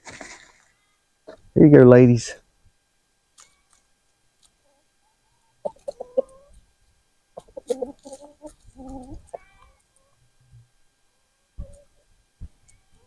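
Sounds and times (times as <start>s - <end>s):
hens clucking: 4.4s - 10.5s, 11.6s - 12.1s.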